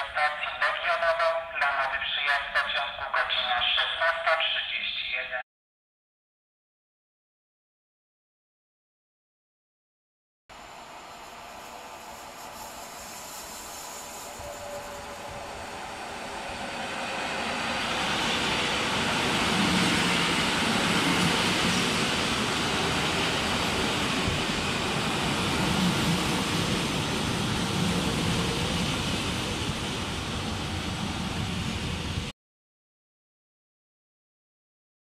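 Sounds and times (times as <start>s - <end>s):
hiss: 10.6s - 16.3s
train wheels rumbling on rail: 10.6s - 32.3s.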